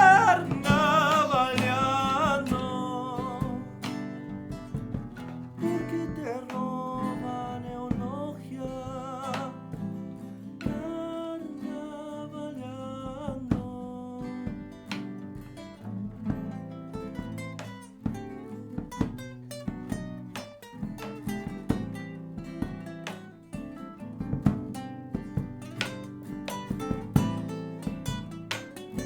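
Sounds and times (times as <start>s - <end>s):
person singing with vibrato: 0.0s - 3.9s, 5.6s - 9.6s
acoustic guitar strumming: 0.0s - 29.0s.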